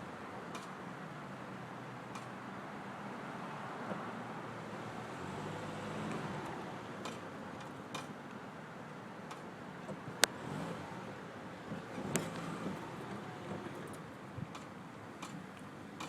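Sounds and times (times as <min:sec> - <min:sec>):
brake clicking: 0:11.7 - 0:16.0.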